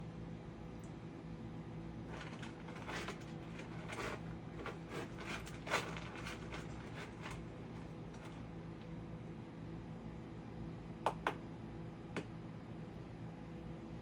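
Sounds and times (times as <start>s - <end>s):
cat scratching in litter: 2.0s - 8.5s.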